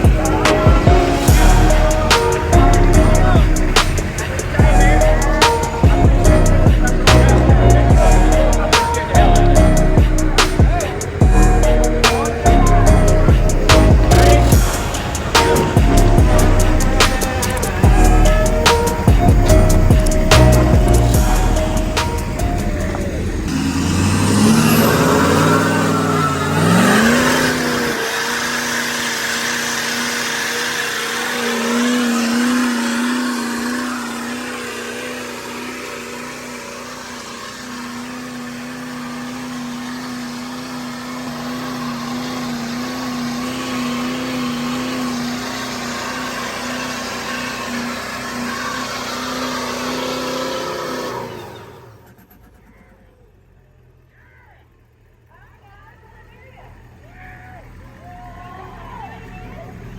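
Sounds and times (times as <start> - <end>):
truck engine revving: 0.0 - 54.1, 54.7 - 59.9.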